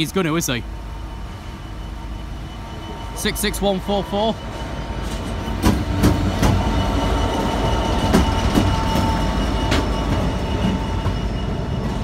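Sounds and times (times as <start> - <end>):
diesel locomotive passing: 0.0 - 12.0
wheels clicking on rails: 5.0 - 12.0.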